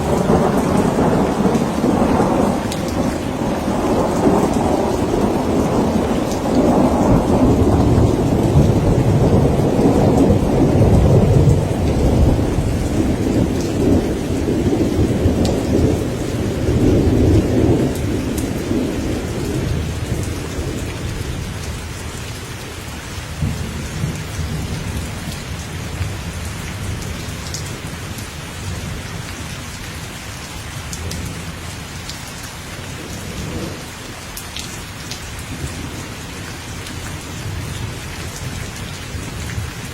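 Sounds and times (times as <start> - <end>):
rolling thunder: 0.0 - 21.9, 32.9 - 33.9
steady rain falling: 0.0 - 39.9.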